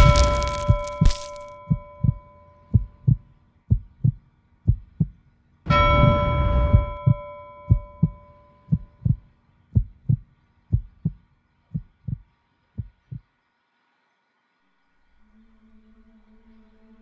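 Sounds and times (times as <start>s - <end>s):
heartbeat thumps: 0.0s - 9.2s, 9.8s - 13.2s
bell ringing: 5.7s - 8.6s.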